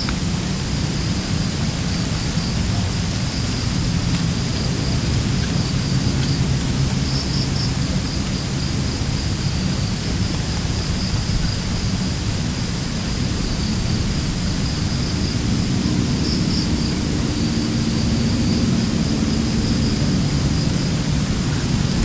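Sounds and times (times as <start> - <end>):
high insect trill: 0.4 - 22.0
strong wind rushing: 8.7 - 22.0.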